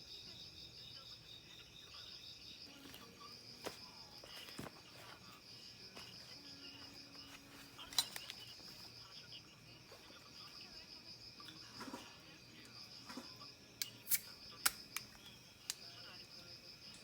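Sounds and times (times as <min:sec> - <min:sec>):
insects trilling: 0:00.0 - 0:17.0
sharp clicks: 0:13.8 - 0:16.0.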